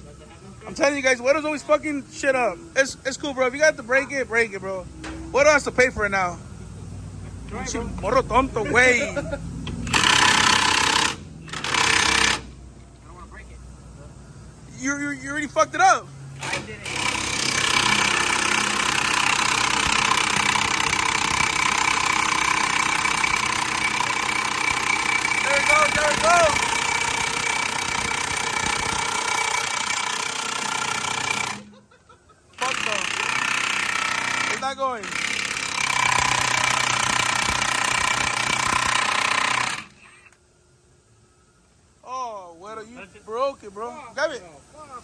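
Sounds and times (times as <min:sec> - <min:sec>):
air impact wrench hammering: 0:09.6 - 0:12.6, 0:16.4 - 0:31.8, 0:32.6 - 0:40.3.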